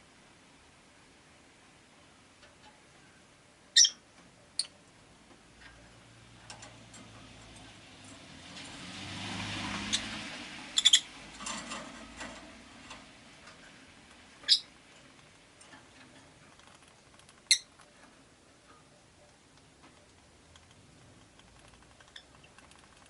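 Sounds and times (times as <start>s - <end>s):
lovebirds chirping: 3.7s - 5.0s, 9.8s - 11.3s, 14.2s - 15.6s, 16.6s - 18.0s, 18.8s - 23.0s
passing vehicle: 6.1s - 14.3s
small clicks and taps: 14.9s - 23.0s.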